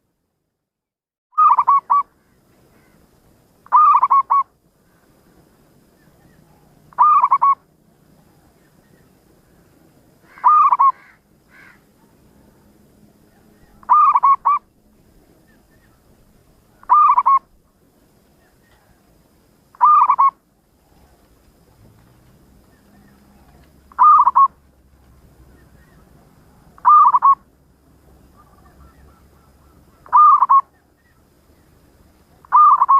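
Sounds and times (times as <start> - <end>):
dove cooing: 1.4 - 2.0, 3.7 - 4.5, 6.2 - 7.6, 10.3 - 11.2, 13.3 - 14.7, 16.7 - 17.6, 19.7 - 21.3, 22.6 - 24.6, 25.4 - 27.5, 28.2 - 31.3, 32.4 - 32.9.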